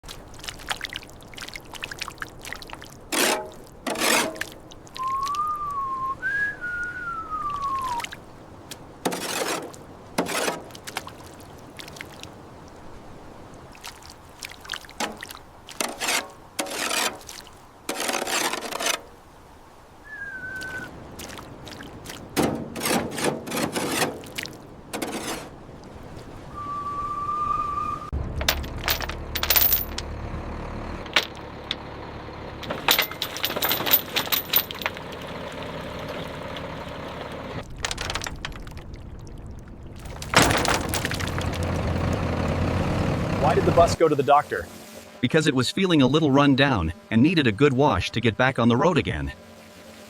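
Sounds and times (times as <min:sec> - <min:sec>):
liquid pouring and sloshing: 0:00.0 - 0:05.4, 0:21.2 - 0:25.6, 0:37.6 - 0:42.0
gliding whistle-like tones: 0:05.0 - 0:08.1, 0:20.0 - 0:20.9, 0:26.5 - 0:28.2.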